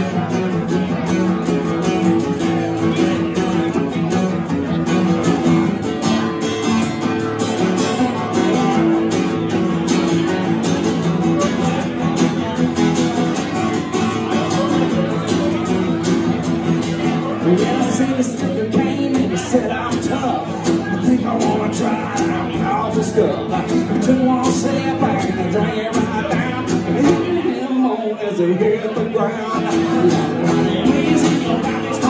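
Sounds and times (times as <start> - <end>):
acoustic guitar country music: 0.0 - 32.0.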